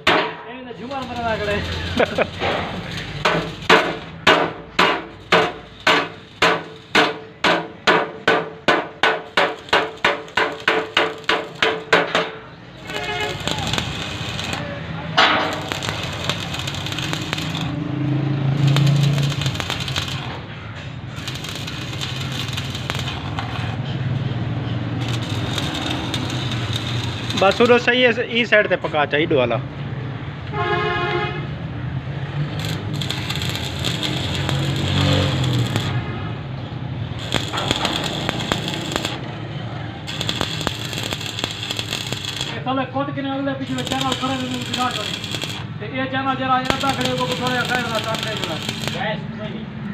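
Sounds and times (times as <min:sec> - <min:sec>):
sharp welding crack: 0:00.0 - 0:17.8, 0:18.6 - 0:20.6, 0:21.2 - 0:23.8, 0:25.0 - 0:28.0, 0:32.5 - 0:36.1, 0:37.2 - 0:39.4, 0:40.0 - 0:42.7, 0:43.6 - 0:45.8, 0:46.6 - 0:49.1
welding arc crackling and hissing: 0:00.8 - 0:04.2, 0:04.9 - 0:07.2, 0:09.0 - 0:12.0, 0:12.8 - 0:14.7, 0:15.4 - 0:17.8, 0:18.6 - 0:20.5, 0:21.2 - 0:23.8, 0:25.0 - 0:28.0, 0:32.5 - 0:36.0, 0:37.2 - 0:39.3, 0:40.0 - 0:42.6, 0:43.6 - 0:45.7, 0:46.6 - 0:49.1.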